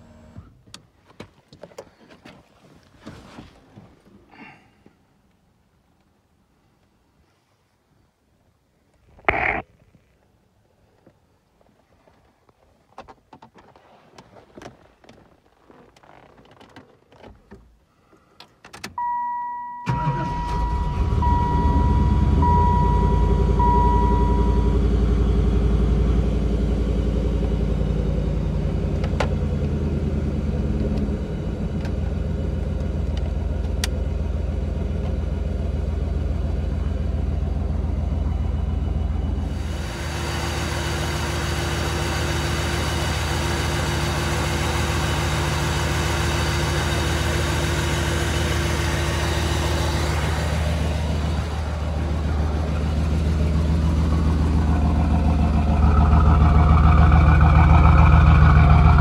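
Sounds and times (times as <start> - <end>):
car engine starting and idling: 0.0 - 0.9, 13.0 - 59.0
dashboard warning chime beeping: 19.0 - 25.1.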